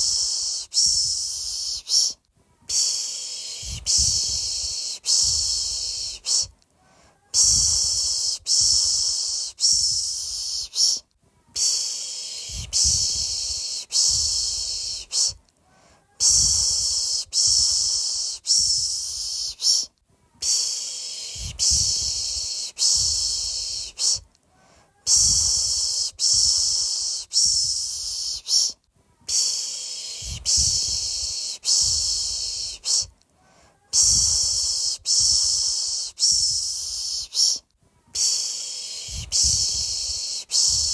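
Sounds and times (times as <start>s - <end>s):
person shushing: 0.0s - 15.4s, 16.0s - 24.2s, 24.9s - 33.1s, 33.8s - 40.9s.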